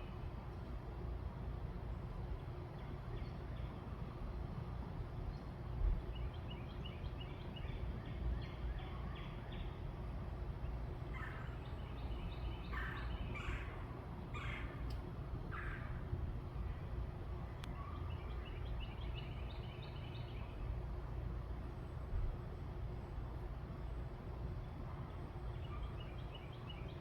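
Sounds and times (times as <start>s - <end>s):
steady low rumble: 7.4s - 26.3s
birds chirping: 10.6s - 16.0s, 17.7s - 20.6s
harsh bird calls: 11.0s - 14.9s.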